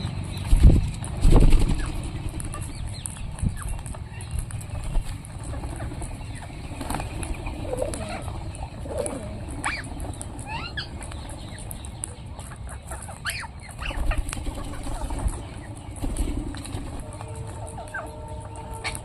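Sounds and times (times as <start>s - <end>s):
low background rumble: 0.0s - 19.0s
parrots screeching: 7.7s - 11.1s, 12.9s - 15.0s, 17.2s - 19.0s.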